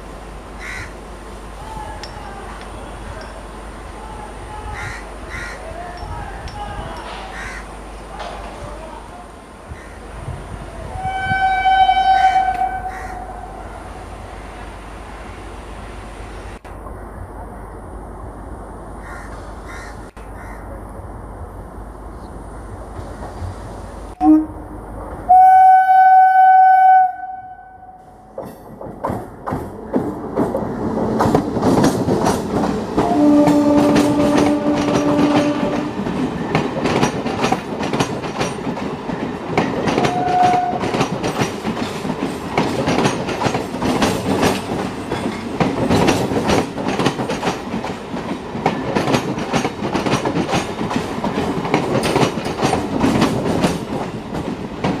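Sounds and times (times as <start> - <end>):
train passing rumble: 0.0 - 55.0
train horn blast: 10.9 - 13.8, 24.2 - 28.1, 33.0 - 36.0, 40.0 - 40.9
wheels clacking over rail joints: 28.2 - 55.0.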